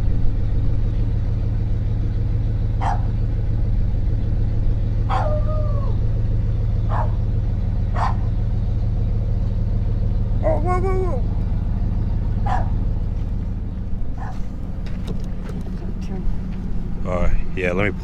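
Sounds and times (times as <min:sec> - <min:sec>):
pickup engine idling: 0:00.0 - 0:18.0
dog barking and whining: 0:02.8 - 0:03.1, 0:05.1 - 0:06.0, 0:06.9 - 0:07.2, 0:08.0 - 0:08.3, 0:10.4 - 0:11.3, 0:12.4 - 0:12.8, 0:14.2 - 0:14.4.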